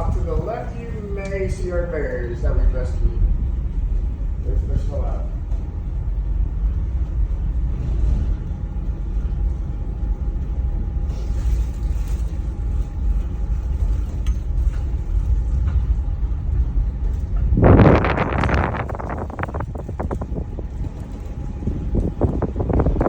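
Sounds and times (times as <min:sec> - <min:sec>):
cable car low rumble: 0:00.0 - 0:23.0
faint steady whine: 0:00.0 - 0:23.0.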